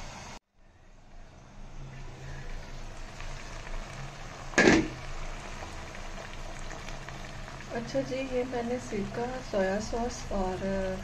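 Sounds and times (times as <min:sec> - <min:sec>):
potatoes sizzling in oil: 0:01.7 - 0:11.0
sharp knock: 0:04.6 - 0:05.0.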